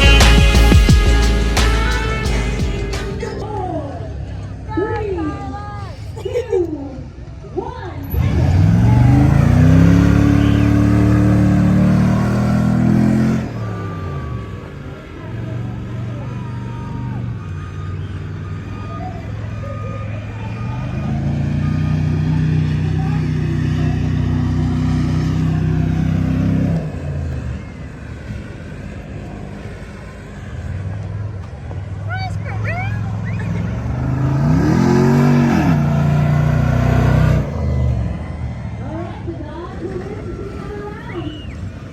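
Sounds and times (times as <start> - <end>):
vehicle engine revving hard: 8.1 - 14.8, 20.5 - 27.8, 32.7 - 38.8.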